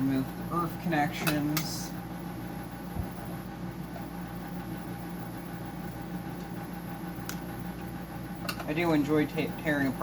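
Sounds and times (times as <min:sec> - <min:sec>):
low machine hum with hiss: 0:00.0 - 0:10.0.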